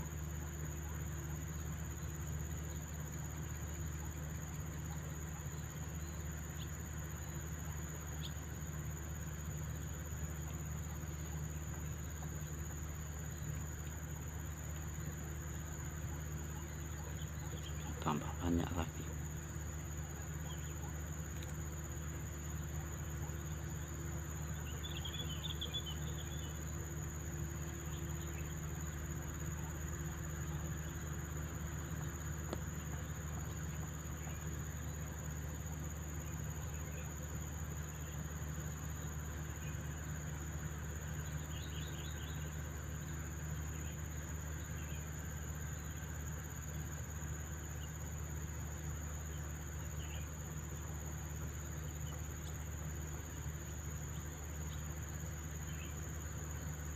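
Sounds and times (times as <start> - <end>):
high-pitched insect drone: 0.0 - 56.9
steady low hum: 0.0 - 56.9
birds twittering: 16.1 - 19.2, 20.0 - 21.5, 22.5 - 35.0, 41.1 - 42.6, 55.6 - 56.0.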